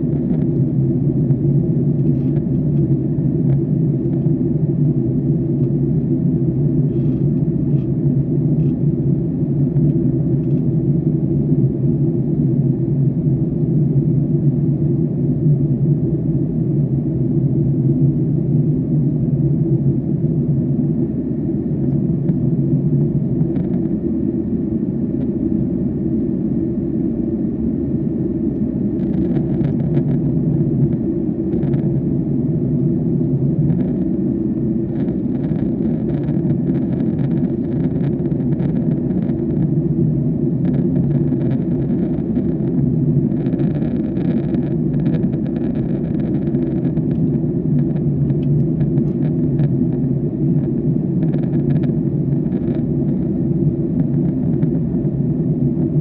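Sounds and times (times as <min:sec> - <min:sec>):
airliner cabin rumble: 0:00.0 - 0:56.0
faint clicks and rattles: 0:34.9 - 0:39.6, 0:43.4 - 0:49.8.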